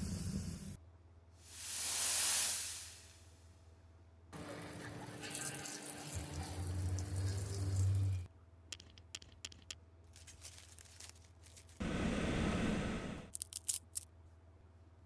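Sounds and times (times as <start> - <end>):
water running from tap: 4.4 - 8.3.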